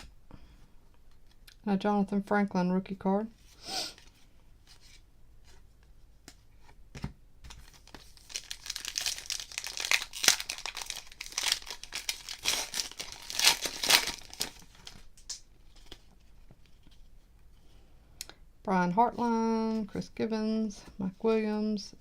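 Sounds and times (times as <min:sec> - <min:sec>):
wrapper tearing and crackling: 0:07.6 - 0:15.4.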